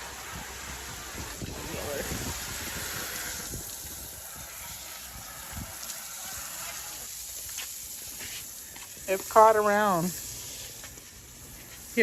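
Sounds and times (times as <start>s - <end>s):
water spraying onto car: 0.0s - 12.0s.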